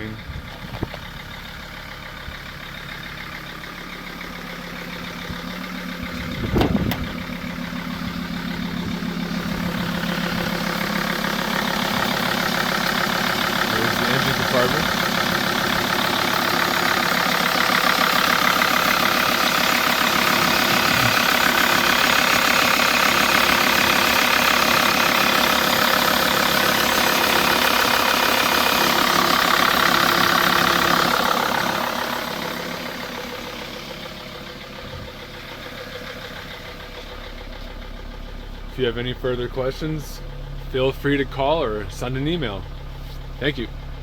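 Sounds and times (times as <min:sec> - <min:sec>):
diesel engine idling: 0:00.0 - 0:44.0.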